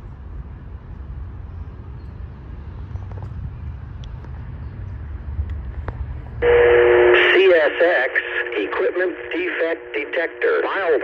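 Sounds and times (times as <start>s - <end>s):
radio static burst: 6.4s - 11.0s
steady radio tone: 6.4s - 11.0s.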